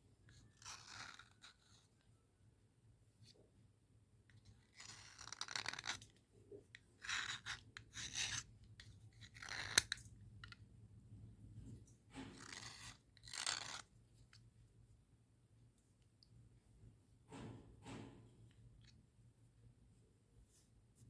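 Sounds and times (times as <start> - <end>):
slate pencils scraping: 0.4 - 1.8, 4.8 - 6.0, 7.0 - 8.5, 12.1 - 13.8.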